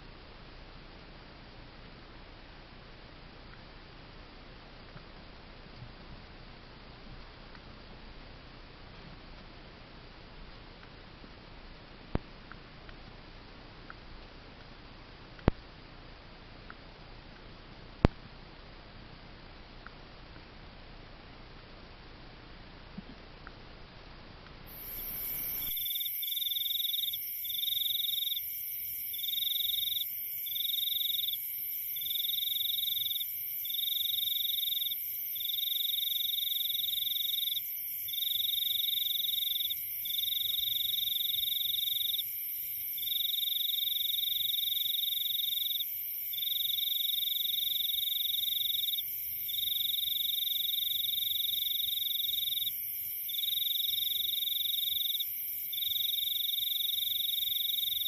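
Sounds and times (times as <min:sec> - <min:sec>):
broad hiss: 0:24.7 - 0:25.9
high continuous animal trills: 0:24.7 - 0:58.0.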